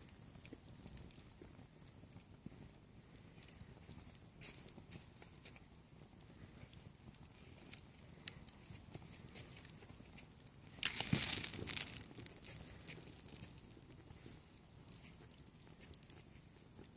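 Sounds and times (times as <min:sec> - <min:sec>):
bonfire crackling: 0:00.0 - 0:16.9
burst of crackling and rustling: 0:07.3 - 0:16.9.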